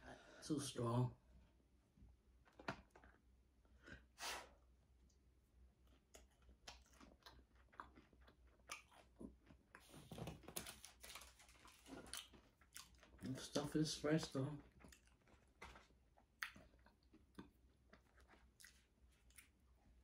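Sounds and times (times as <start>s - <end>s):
person chewing food: 5.6s - 13.4s, 14.6s - 20.0s.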